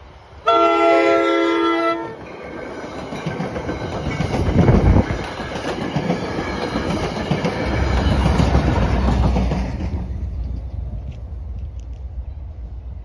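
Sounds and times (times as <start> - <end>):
train wheels clattering on rails: 2.2 - 12.0.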